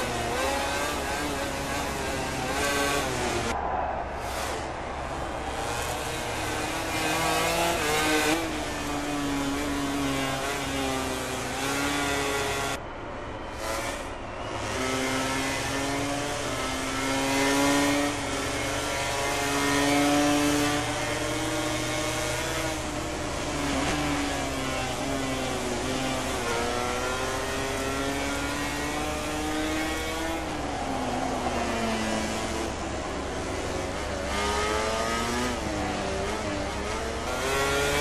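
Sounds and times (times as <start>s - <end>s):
racing motorcycle engines revving: 0.0s - 38.0s.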